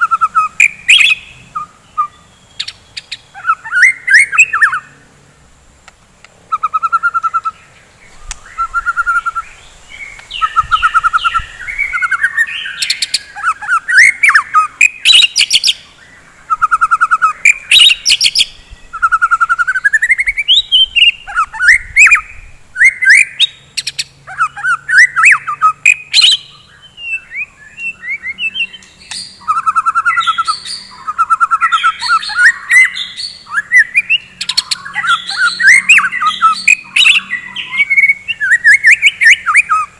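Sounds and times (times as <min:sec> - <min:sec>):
songbird singing varied song: 0:00.0 - 0:39.9.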